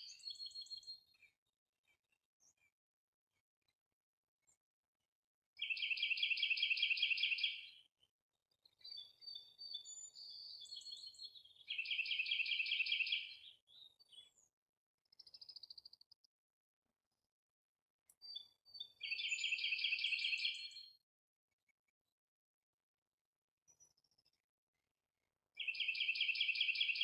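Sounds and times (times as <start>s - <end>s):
bird chirps: 0.0s - 1.2s, 5.6s - 7.9s, 8.6s - 14.5s, 18.2s - 21.0s, 25.6s - 27.0s.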